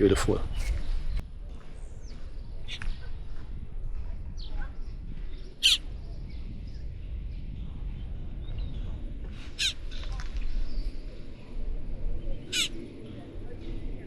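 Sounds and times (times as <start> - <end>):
bird harsh calls: 0.0 - 1.2, 5.6 - 5.9, 9.5 - 10.0, 12.4 - 12.8
steady low rumble: 0.0 - 14.0.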